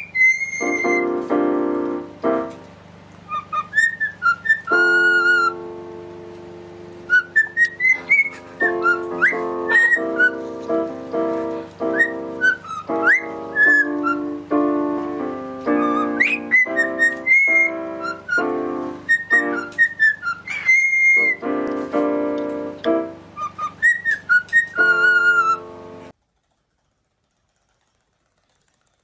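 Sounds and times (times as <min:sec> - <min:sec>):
cockatiel whistling: 0:00.0 - 0:01.3, 0:03.2 - 0:05.6, 0:07.0 - 0:10.5, 0:11.8 - 0:14.4, 0:15.6 - 0:21.5, 0:23.4 - 0:25.7
piano chords: 0:00.0 - 0:26.2.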